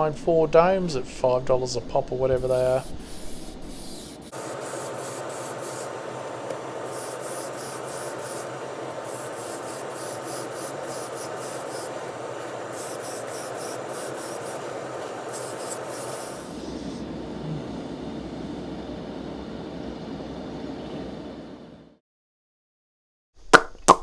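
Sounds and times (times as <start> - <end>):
constant hum: 0.0 - 22.0
rhythmic abrasive scraping strokes: 2.3 - 17.0
steady rubbing: 2.4 - 18.9.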